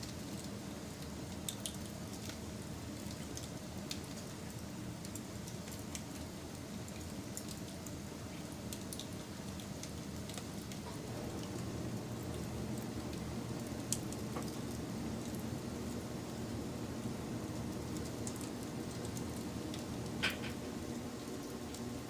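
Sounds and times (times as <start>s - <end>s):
wood fire crackling: 0.0s - 22.0s
pops and snaps of burning wood: 13.8s - 15.4s.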